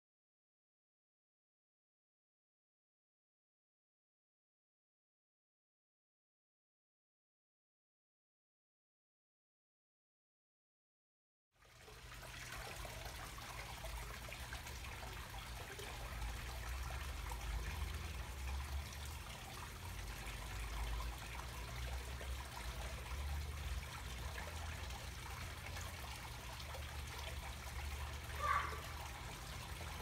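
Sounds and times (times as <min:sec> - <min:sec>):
running water trickling: 0:11.6 - 0:30.0.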